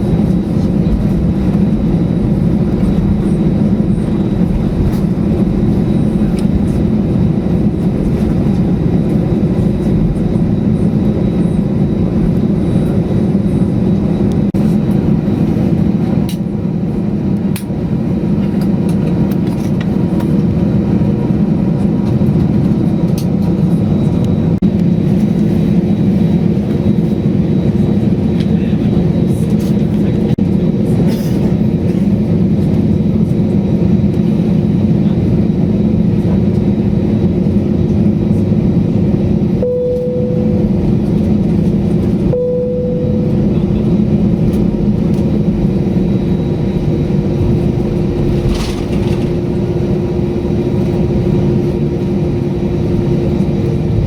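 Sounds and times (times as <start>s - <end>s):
airliner cabin engine noise: 0.0s - 54.0s
short steady tones: 39.6s - 40.8s, 42.3s - 43.5s.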